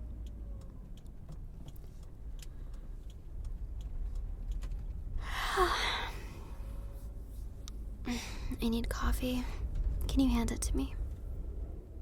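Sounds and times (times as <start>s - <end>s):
faint clicks: 0.0s - 5.2s
car interior road rumble: 0.0s - 12.0s
woman sighing: 5.2s - 6.4s.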